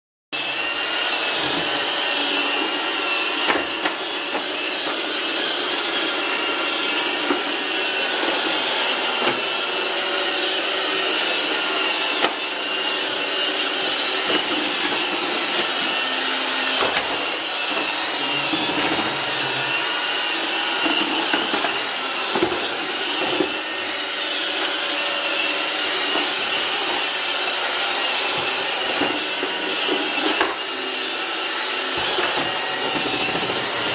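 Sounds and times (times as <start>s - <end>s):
robot vacuum running: 0.4s - 33.9s
vacuum bumping over threshold: 18.0s - 20.1s.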